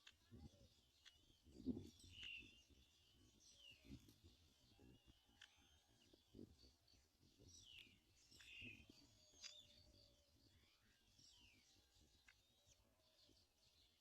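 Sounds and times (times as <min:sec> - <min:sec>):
soft clicks: 0:00.0 - 0:03.9, 0:05.0 - 0:06.3
faint bird chirps: 0:00.0 - 0:14.0.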